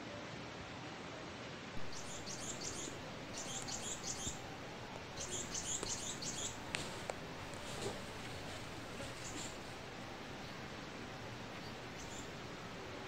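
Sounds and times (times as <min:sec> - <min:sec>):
background hiss: 0:00.0 - 0:13.0
bird chirping: 0:01.8 - 0:12.6.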